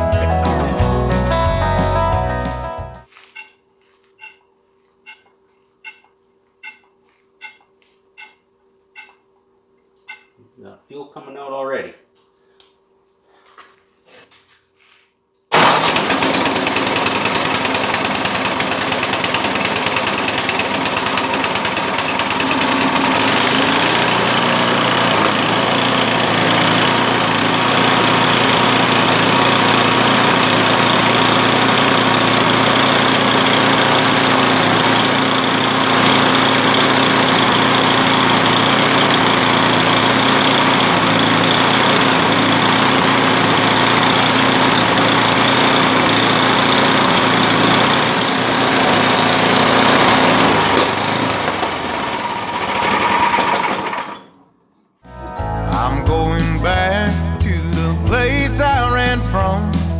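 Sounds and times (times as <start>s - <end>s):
snowblower engine running: 15.5s - 54.2s, 55.7s - 59.9s.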